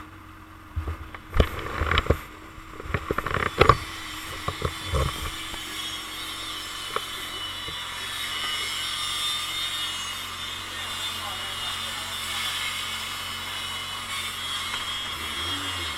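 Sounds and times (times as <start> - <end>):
motorcycle under way: 0.0 - 15.9
sharp knocks and clicks: 2.8 - 5.6.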